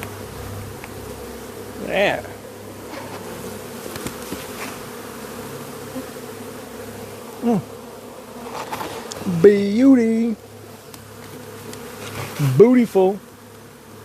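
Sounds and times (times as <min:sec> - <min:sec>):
bees buzzing: 0:00.0 - 0:14.0
person's voice: 0:01.8 - 0:02.4, 0:07.4 - 0:07.7, 0:09.2 - 0:10.4, 0:12.4 - 0:13.2.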